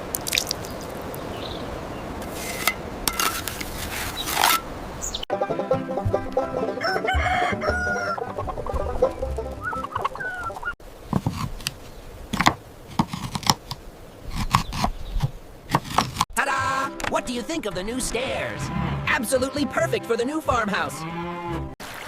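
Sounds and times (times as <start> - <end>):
chickens clucking: 6.0 - 10.8
rooster crowing: 6.6 - 8.5, 9.6 - 10.8.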